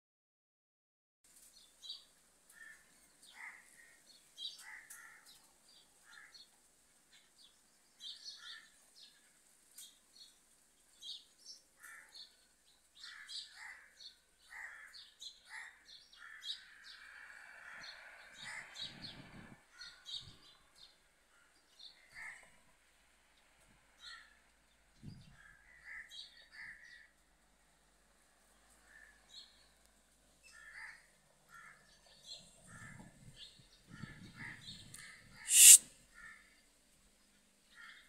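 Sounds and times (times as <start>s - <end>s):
birds chirping and calling: 35.5s - 35.8s.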